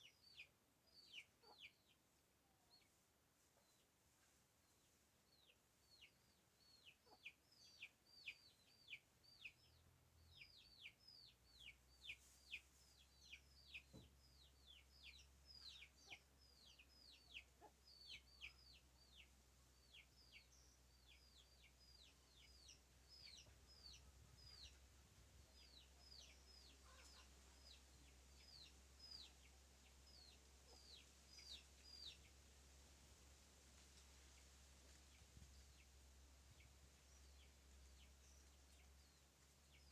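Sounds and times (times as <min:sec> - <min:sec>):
faint bird chirping: 0:04.6 - 0:32.4.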